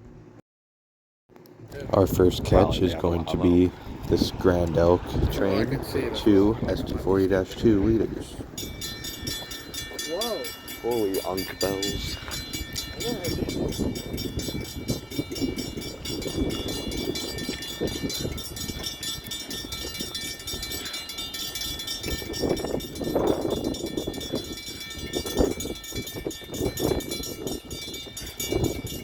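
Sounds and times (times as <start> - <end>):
freight train rumbling past: 2.0 - 12.2
crossing bells ringing: 5.8 - 29.0.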